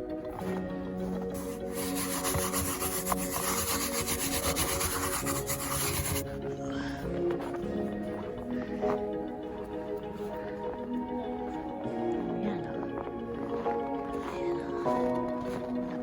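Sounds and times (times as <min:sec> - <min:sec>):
background music with held notes: 0:00.0 - 0:16.0
snow shovel scraping snow: 0:01.0 - 0:06.2.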